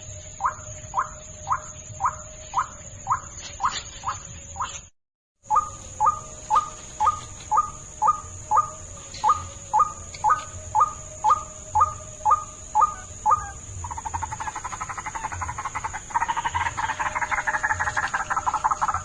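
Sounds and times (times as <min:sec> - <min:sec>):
rattling croak: 0:00.0 - 0:04.9, 0:07.9 - 0:19.0
steady high-pitched tone: 0:05.4 - 0:19.0.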